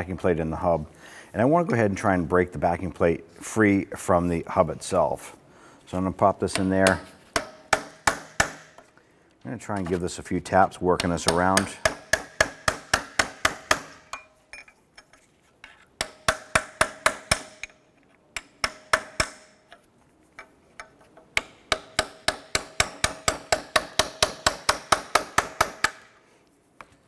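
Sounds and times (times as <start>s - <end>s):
hammer striking metal punch: 6.5s - 8.8s, 11.0s - 14.4s, 16.0s - 17.8s, 18.4s - 19.6s, 20.8s - 26.1s.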